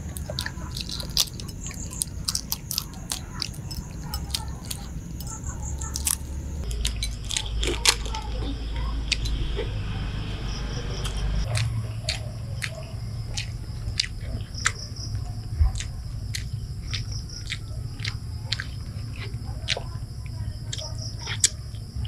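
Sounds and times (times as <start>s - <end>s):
chewing and mouth smacking: 0.0s - 8.2s, 11.1s - 21.6s.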